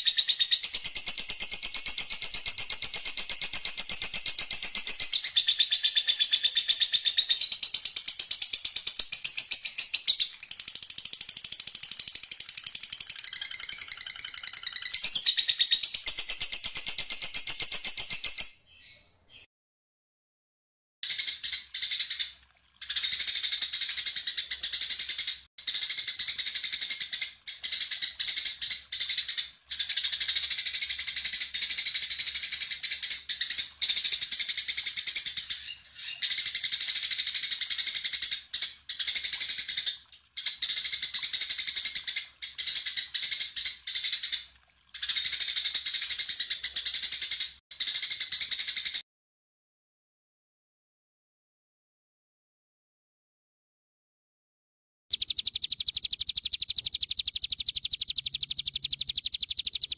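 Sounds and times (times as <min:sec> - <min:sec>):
songbird chattering song: 0:00.0 - 0:19.5, 0:55.1 - 0:59.9.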